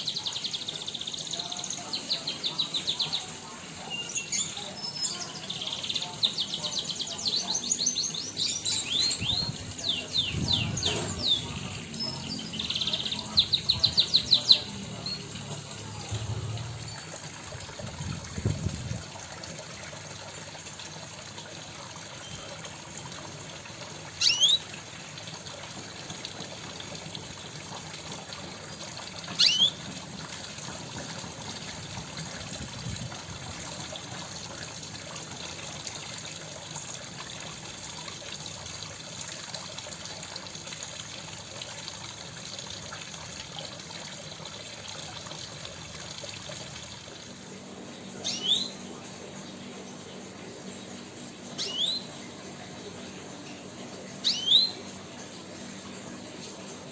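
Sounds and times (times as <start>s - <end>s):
songbirds chirping: 0.0s - 18.2s, 47.2s - 56.7s.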